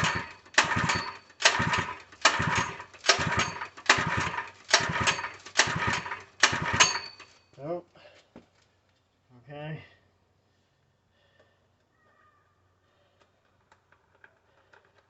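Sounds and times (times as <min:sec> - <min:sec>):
recoil pull-starter whirring: 0:00.0 - 0:07.4.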